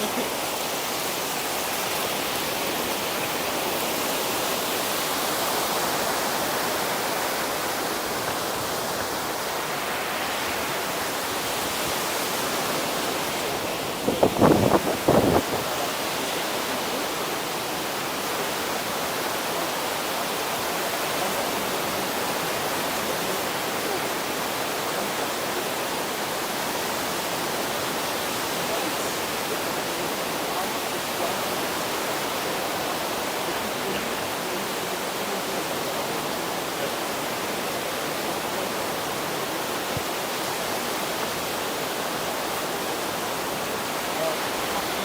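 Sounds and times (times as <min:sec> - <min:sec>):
sea rushing on a beach: 0:00.0 - 0:45.0.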